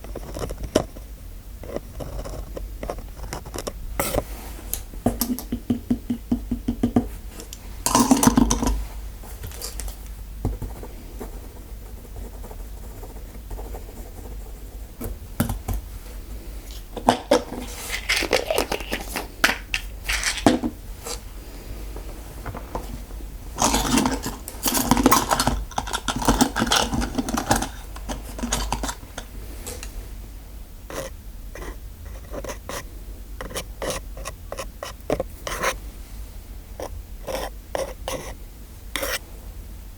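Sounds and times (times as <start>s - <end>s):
steady low hum: 0.0s - 39.9s
metal instruments clicking and scraping: 16.7s - 21.2s, 22.5s - 29.9s.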